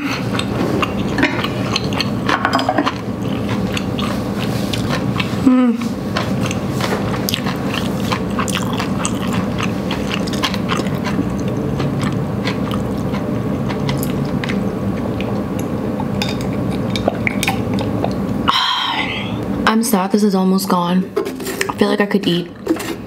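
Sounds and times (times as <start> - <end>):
person chewing noodles: 0.0 - 18.4
low background hum: 0.0 - 23.0.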